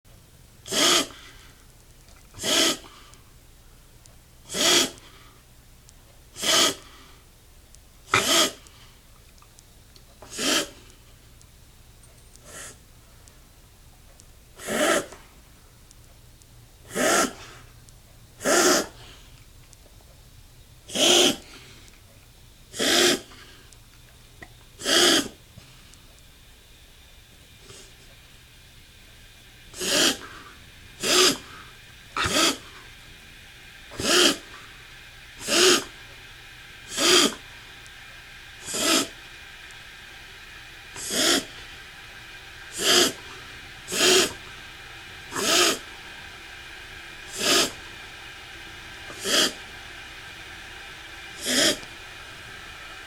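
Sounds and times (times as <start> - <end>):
dog coughing: 0.7 - 1.2, 2.4 - 3.0, 4.5 - 5.0, 6.4 - 6.9, 8.1 - 8.6, 10.2 - 10.8, 14.6 - 15.2, 16.9 - 17.6, 18.4 - 19.0, 20.9 - 21.5, 22.7 - 23.4, 24.8 - 25.4, 29.7 - 30.4, 31.0 - 31.6, 32.2 - 32.8, 33.9 - 34.6, 35.4 - 35.9, 36.9 - 37.4, 38.6 - 39.1, 41.0 - 41.5, 42.7 - 43.2, 43.9 - 44.4, 45.3 - 45.9, 47.3 - 47.8, 49.1 - 49.6, 51.4 - 51.8.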